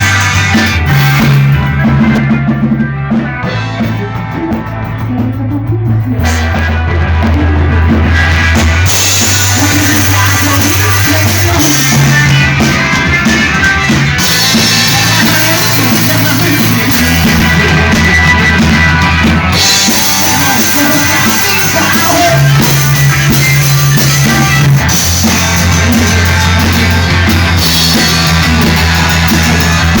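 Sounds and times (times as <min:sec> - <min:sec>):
bass line: 0:00.0 - 0:30.0
drums and cymbals: 0:00.0 - 0:30.0
rock band playing: 0:00.0 - 0:30.0.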